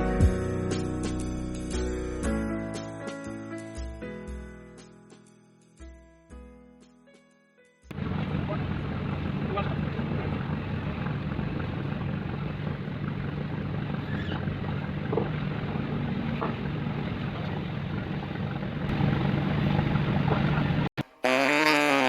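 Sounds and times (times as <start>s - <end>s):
music: 0.0s - 7.9s
boat diesel engine droning: 7.9s - 20.9s.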